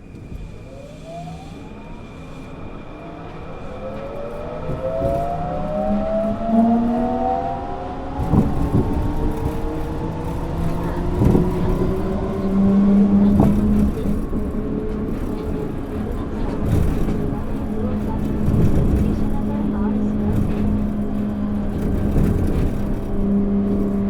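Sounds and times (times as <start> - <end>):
train motors whining: 8.2 - 24.0.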